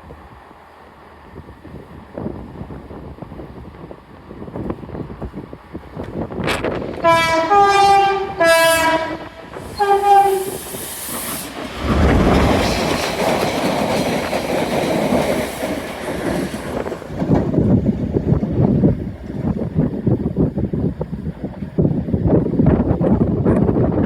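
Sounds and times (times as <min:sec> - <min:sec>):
locomotive passing at speed: 0:06.4 - 0:18.8
two-tone train horn: 0:07.0 - 0:10.6.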